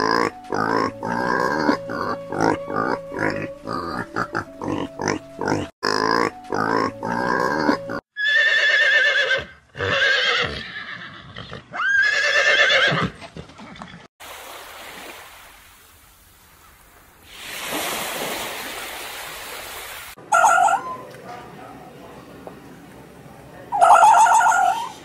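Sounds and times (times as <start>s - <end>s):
horse whinnying: 7.6s - 13.2s.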